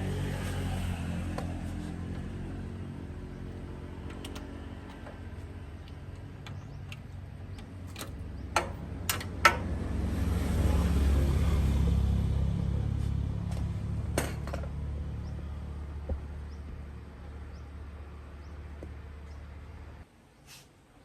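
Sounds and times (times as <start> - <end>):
low engine hum: 0.0 - 20.1
sharp metallic knocks: 7.9 - 9.8.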